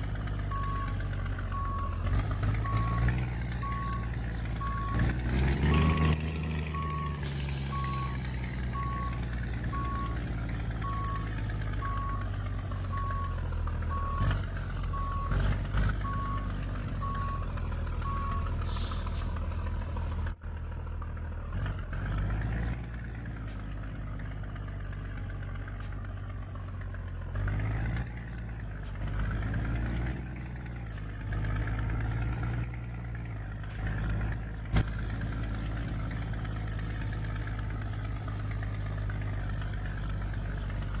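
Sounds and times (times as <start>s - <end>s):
truck diesel engine running: 0.0s - 41.0s
reversing alarm beeping: 0.5s - 2.0s, 2.6s - 5.1s, 5.7s - 10.2s, 10.8s - 12.2s, 12.9s - 15.4s, 16.0s - 18.6s.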